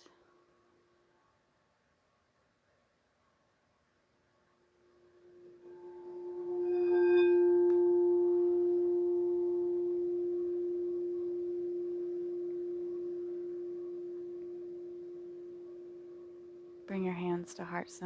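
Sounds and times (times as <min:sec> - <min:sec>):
singing bowl ringing: 0:04.9 - 0:18.0.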